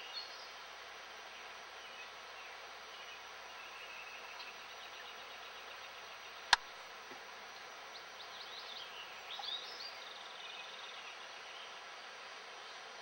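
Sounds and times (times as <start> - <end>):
songbird chirping and trilling: 0.0 - 0.6, 1.2 - 6.7, 7.4 - 12.9.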